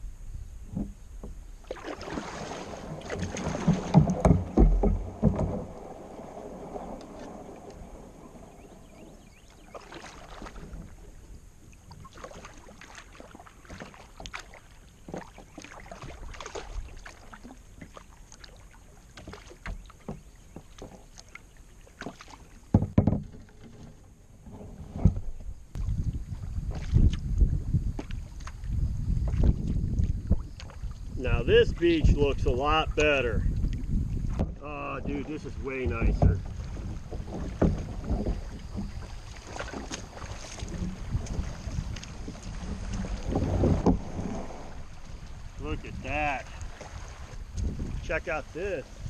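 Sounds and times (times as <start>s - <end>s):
paddle splashing water: 0.7s - 49.0s
water dripping from paddle: 11.6s - 22.8s, 36.1s - 45.7s.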